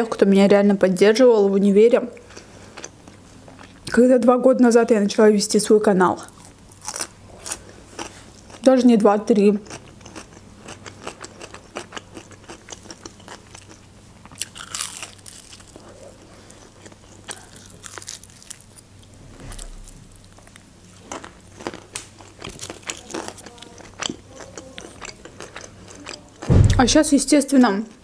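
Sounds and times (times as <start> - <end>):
crisp pastry crunching: 6.2 - 8.7, 9.4 - 26.5.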